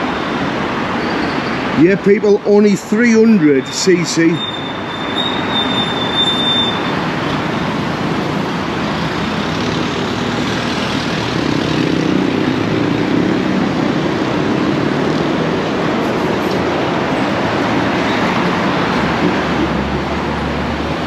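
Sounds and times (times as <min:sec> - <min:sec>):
vehicle engine hum: 0:07.0 - 0:21.0.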